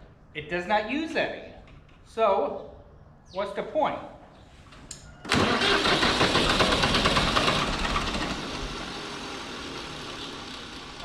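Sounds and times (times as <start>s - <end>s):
tractor engine starting: 5.2s - 11.0s.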